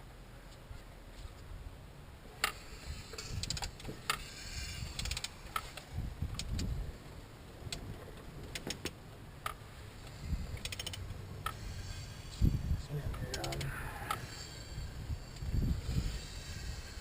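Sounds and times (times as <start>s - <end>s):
metallic clicks of hand tools: 8.5s - 11.6s, 13.1s - 14.3s.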